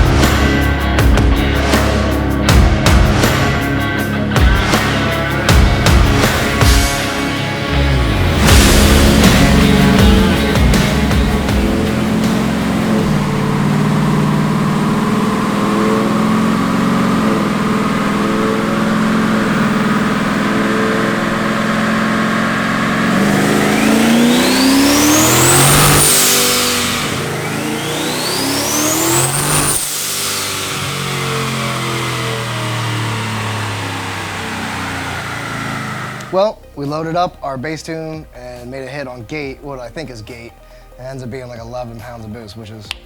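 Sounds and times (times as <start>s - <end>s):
engine revving on a dyno: 4.6s - 36.4s.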